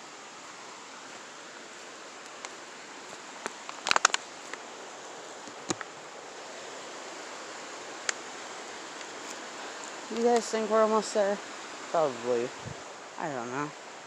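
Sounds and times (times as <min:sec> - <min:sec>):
footsteps on forest trail: 0:00.5 - 0:07.1, 0:08.0 - 0:10.7
sharp snaps and clicks: 0:03.4 - 0:04.6.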